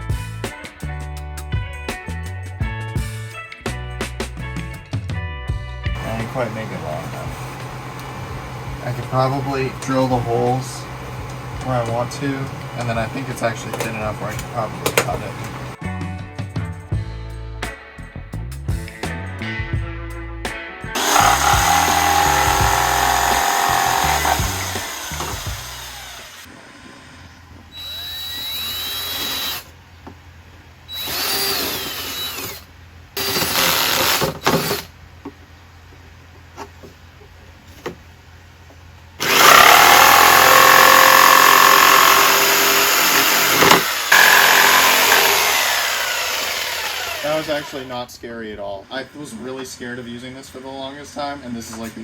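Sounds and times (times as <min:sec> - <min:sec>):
electric drill boring: 0:06.0 - 0:15.8, 0:21.0 - 0:26.5, 0:27.7 - 0:29.7, 0:30.9 - 0:32.6, 0:33.2 - 0:34.9, 0:39.2 - 0:47.9.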